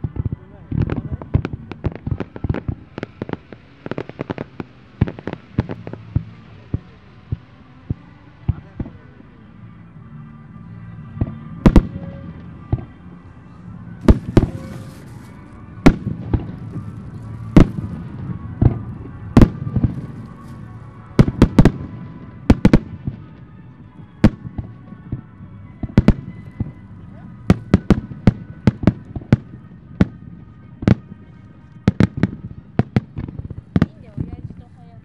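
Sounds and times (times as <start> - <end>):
firework hiss: 1.4 - 7.5, 14.0 - 18.8.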